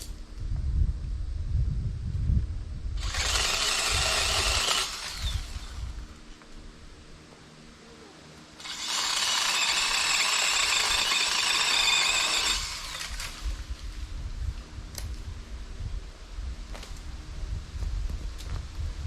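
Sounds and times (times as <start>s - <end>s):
electric saw motor whining: 3.0s - 6.2s, 8.6s - 13.8s.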